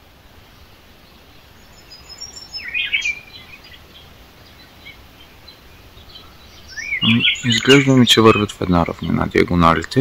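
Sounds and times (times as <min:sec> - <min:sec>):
faint background noise: 0:00.0 - 0:10.0
songbird singing: 0:00.0 - 0:10.0.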